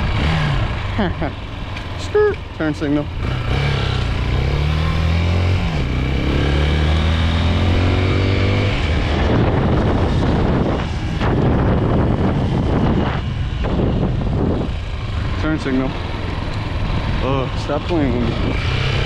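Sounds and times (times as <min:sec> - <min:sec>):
motorcycle engine accelerating: 0:00.0 - 0:19.0
wind noise while riding: 0:07.0 - 0:19.0.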